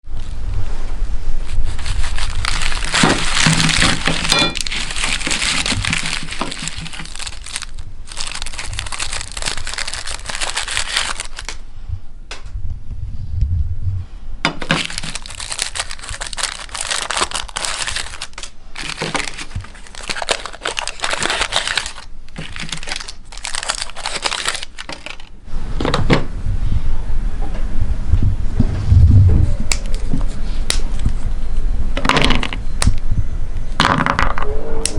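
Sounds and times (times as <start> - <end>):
low hum: 0.0 - 34.9
plastic wrappers crinkling and tearing: 1.4 - 11.6, 14.6 - 25.4.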